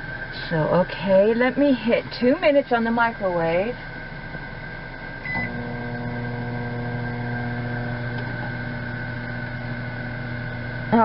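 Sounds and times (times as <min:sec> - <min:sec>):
microwave oven humming: 0:00.0 - 0:11.0
microwave oven beep: 0:05.2 - 0:11.0.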